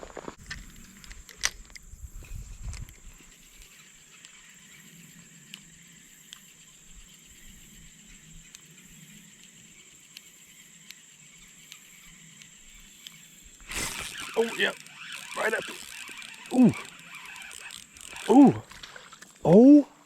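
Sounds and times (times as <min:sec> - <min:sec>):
high-pitched insect trill: 0:00.5 - 0:19.4
faint clicks: 0:08.1 - 0:19.5
flowing water rush: 0:13.7 - 0:19.6.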